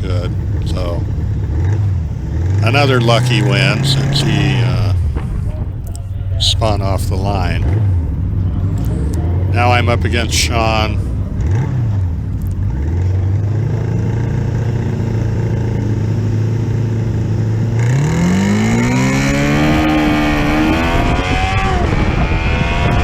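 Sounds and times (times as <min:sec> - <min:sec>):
motorcycle engine revving: 0:00.0 - 0:23.0
wind noise: 0:03.7 - 0:09.6, 0:18.8 - 0:23.0.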